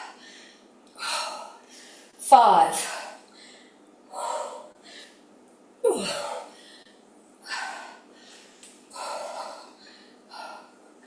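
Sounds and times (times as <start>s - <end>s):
woman grunting: 5.8s - 6.5s.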